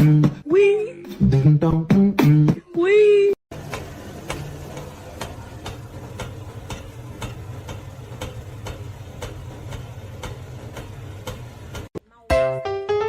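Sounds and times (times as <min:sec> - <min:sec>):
steady ticking clicks: 0:03.6 - 0:12.0.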